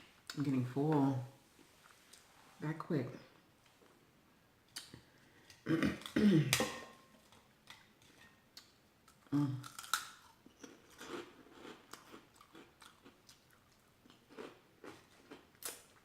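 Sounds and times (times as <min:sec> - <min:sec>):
person chewing food: 0:07.2 - 0:16.0.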